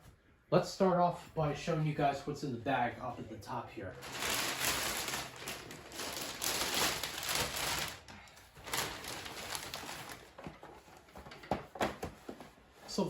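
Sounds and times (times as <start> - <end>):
bag rustling and crinkling: 4.0 - 11.3.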